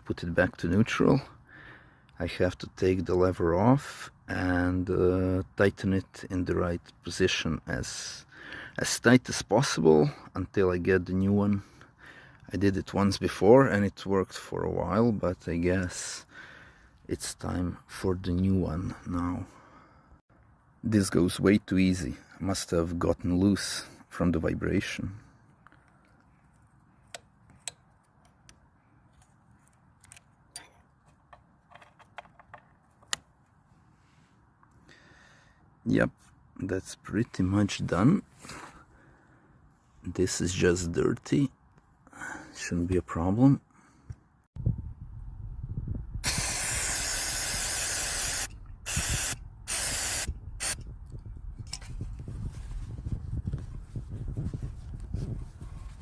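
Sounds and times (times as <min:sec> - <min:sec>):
spray hissing: 0:46.2 - 0:50.8.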